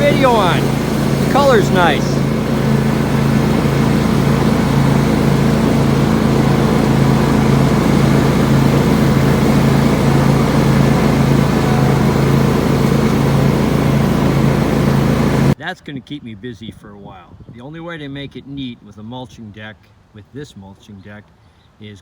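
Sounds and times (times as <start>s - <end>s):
lawn tractor engine droning: 0.0s - 15.6s.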